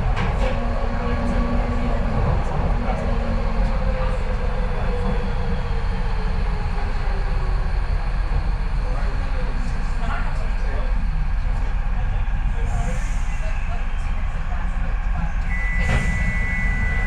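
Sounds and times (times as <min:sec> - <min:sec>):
train wheels rumbling on track: 0:00.0 - 0:17.0
train motor whine: 0:15.5 - 0:17.0.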